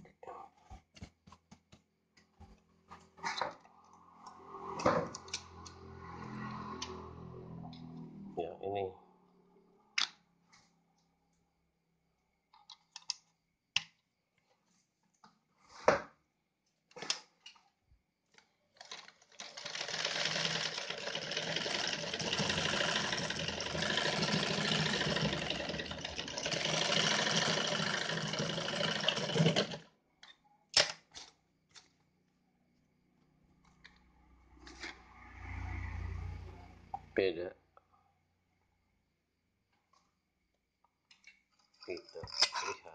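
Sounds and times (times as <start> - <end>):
sewing machine stitching: 18.8 - 29.9.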